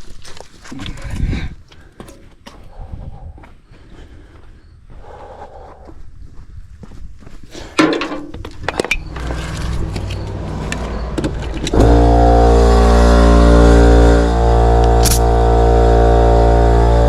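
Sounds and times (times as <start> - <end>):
clicks and knocks: 7.8 - 11.9
engine starting and idling: 8.8 - 13.0.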